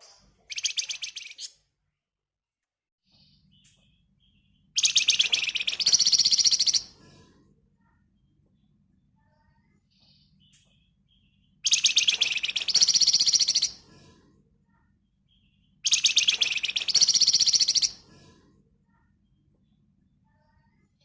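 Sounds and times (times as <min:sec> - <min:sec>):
songbird chattering trills: 0:04.8 - 0:06.9, 0:11.6 - 0:13.8, 0:15.8 - 0:18.0.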